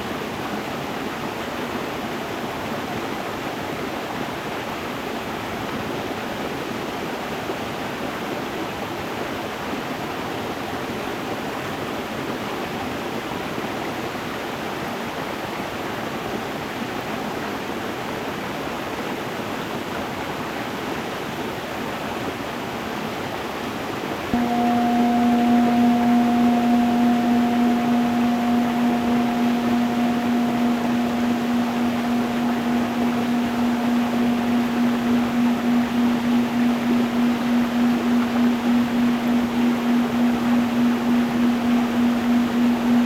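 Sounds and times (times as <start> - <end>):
singing bowl ringing: 24.4 - 43.0.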